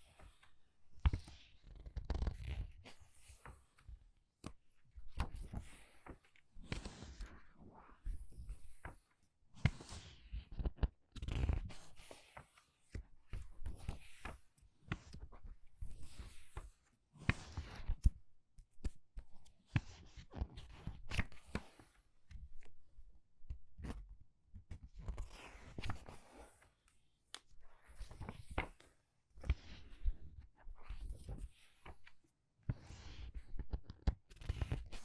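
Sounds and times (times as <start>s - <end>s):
soft thuds of pages settling: 28.0s - 29.6s
book pages turning: 28.0s - 30.0s.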